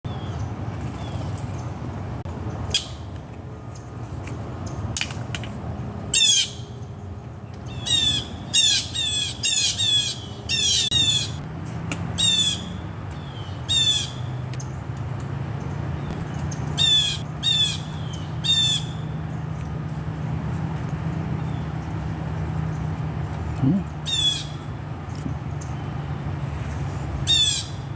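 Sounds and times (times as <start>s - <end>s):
squirrel alarm cries: 6.1s - 6.8s, 7.7s - 11.4s, 12.2s - 14.4s, 16.1s - 19.2s, 23.6s - 24.7s, 27.2s - 27.9s.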